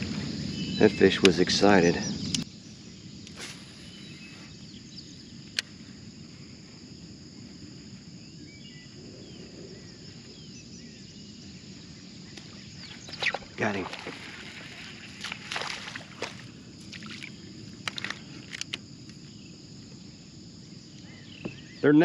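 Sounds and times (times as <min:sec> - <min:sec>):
high insect chorus: 0:00.0 - 0:22.0
faint bird chirps: 0:00.5 - 0:05.6, 0:08.2 - 0:15.4, 0:20.9 - 0:22.0.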